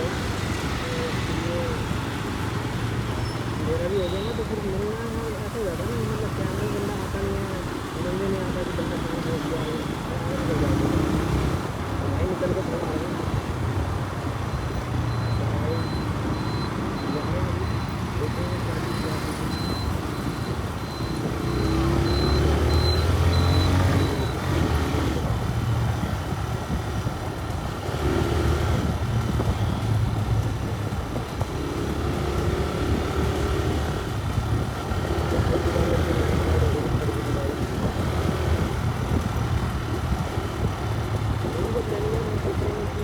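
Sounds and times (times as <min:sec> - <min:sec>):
faint high beep: 0:14.5 - 0:24.4
motorcycle engine running: 0:17.5 - 0:43.0.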